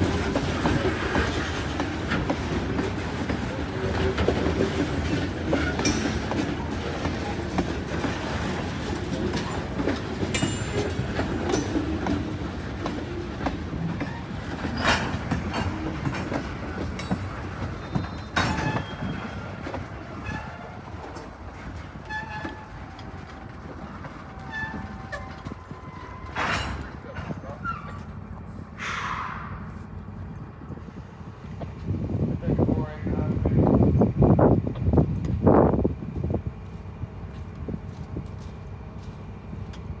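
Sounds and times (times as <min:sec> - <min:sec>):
wheel clicks over rail joints: 0:00.0 - 0:28.2
freight train rumbling: 0:00.0 - 0:40.0.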